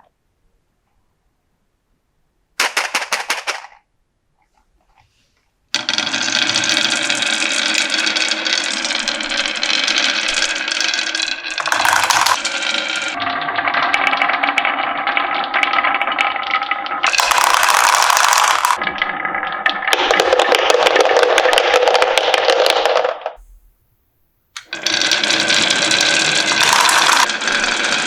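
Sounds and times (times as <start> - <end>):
marbles clattering down wooden run: 2.6 - 3.8, 5.8 - 13.2, 15.3 - 23.4, 24.6 - 28.0.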